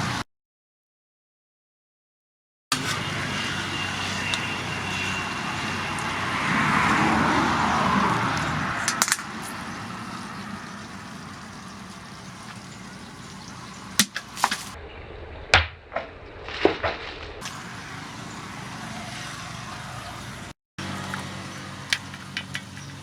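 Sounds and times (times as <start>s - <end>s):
steady background noise: 2.7s - 15.2s, 17.4s - 23.0s.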